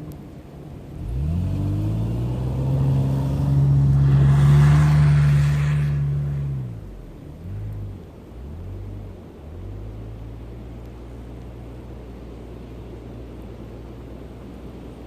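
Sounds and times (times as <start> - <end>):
car engine revving: 0.9 - 11.3.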